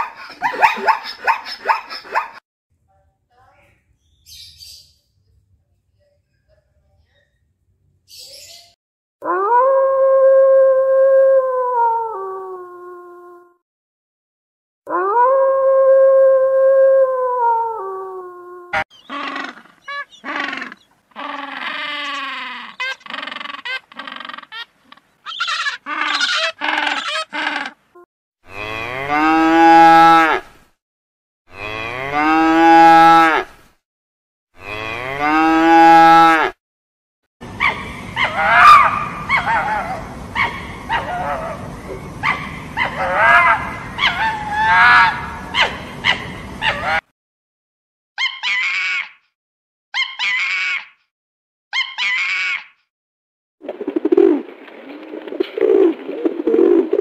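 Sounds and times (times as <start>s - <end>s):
short yelping calls: 0.0s - 2.4s, 18.8s - 27.8s, 48.2s - 49.1s, 50.0s - 50.8s, 51.8s - 52.6s
fox squealing calls: 0.2s - 2.4s, 18.8s - 27.8s, 48.2s - 49.1s, 50.0s - 50.9s, 51.8s - 52.7s
wolf howling: 9.2s - 13.4s, 14.9s - 22.7s, 37.6s - 45.8s
cow mooing: 28.5s - 30.4s, 31.5s - 33.4s, 34.6s - 36.5s.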